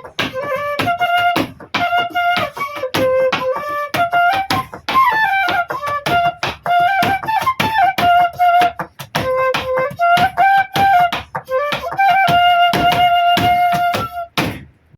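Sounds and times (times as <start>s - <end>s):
rhythmic percussive beats: 0.0s - 14.6s
bamboo flute folk melody: 0.0s - 14.7s.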